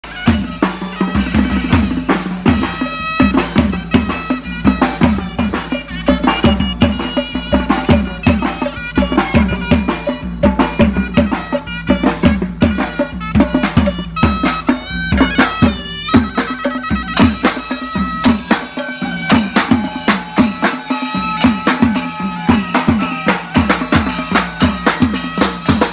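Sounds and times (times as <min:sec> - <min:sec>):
fast drum and percussion strokes: 0:00.0 - 0:25.9
reedy wind instrument: 0:00.0 - 0:25.9.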